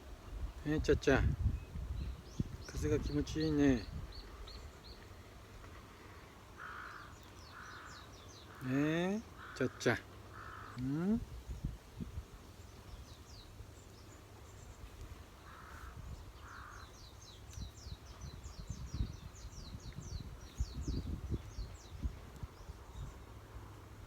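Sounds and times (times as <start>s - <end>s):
wind rumbling on microphone: 0.0s - 5.6s, 10.4s - 13.5s, 14.8s - 24.0s
crow cawing: 6.6s - 11.0s, 15.4s - 16.9s
small bird chirping: 12.6s - 23.3s.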